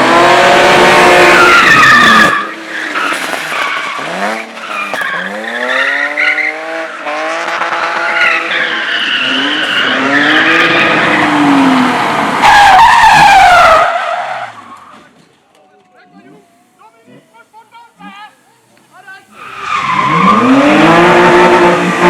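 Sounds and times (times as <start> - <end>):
car engine revving: 0.0 - 13.9, 19.3 - 22.0
tyres squealing: 0.9 - 6.7, 16.6 - 21.6.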